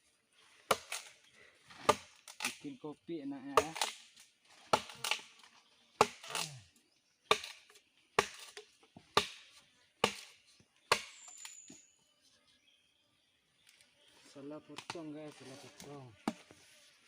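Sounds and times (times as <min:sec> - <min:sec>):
blade chopping wood: 0:00.7 - 0:01.1, 0:03.5 - 0:05.4, 0:06.0 - 0:06.6, 0:07.3 - 0:11.7, 0:16.2 - 0:16.5.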